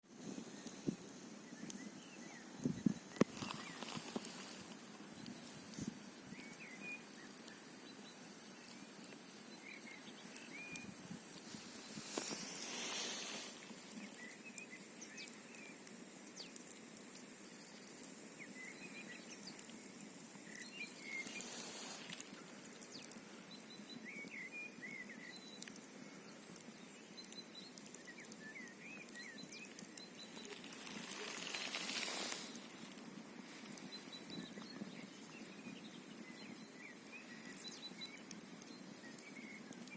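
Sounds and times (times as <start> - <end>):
campfire crackling and popping: 0.0 - 39.9
wind gusts: 0.2 - 6.4, 10.8 - 14.2.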